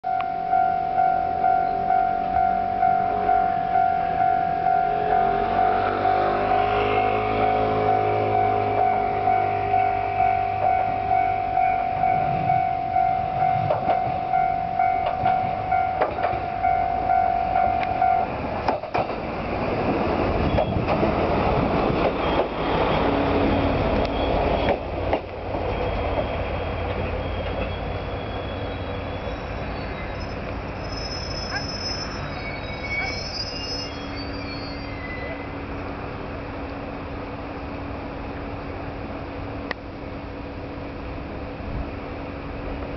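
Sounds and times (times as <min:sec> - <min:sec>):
ringing warning tone: 0:00.1 - 0:18.4
train wheels clicking over rail joints: 0:15.0 - 0:16.5, 0:18.6 - 0:28.0
brake squeal: 0:22.1 - 0:25.0, 0:25.6 - 0:35.8.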